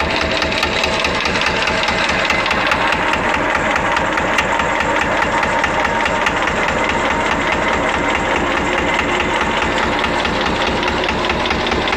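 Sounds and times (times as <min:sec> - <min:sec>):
engine idling: 0:00.0 - 0:11.9.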